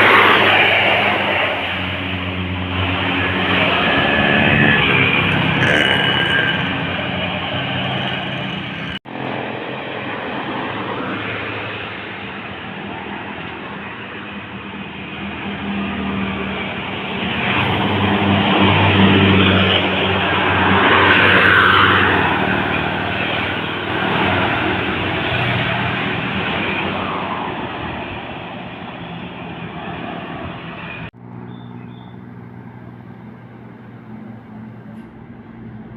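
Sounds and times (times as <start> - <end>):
bus engine humming: 0.0 - 20.9, 22.1 - 35.9
horn-like tones: 4.0 - 7.4.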